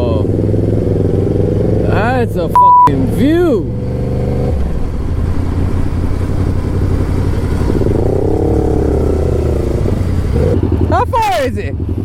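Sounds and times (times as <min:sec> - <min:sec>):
motorcycle engine drone: 0:00.0 - 0:12.0.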